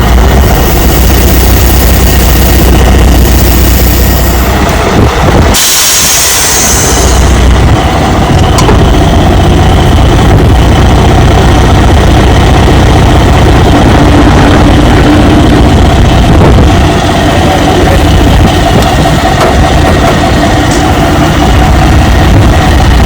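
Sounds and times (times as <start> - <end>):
vehicle engine deep rumble: 0.0 - 23.0.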